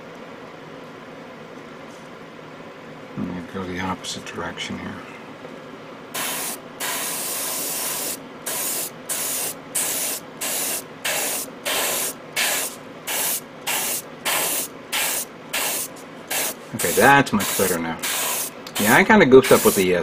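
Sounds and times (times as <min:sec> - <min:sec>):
airbrush spraying in hissing bursts: 0:06.2 - 0:20.0.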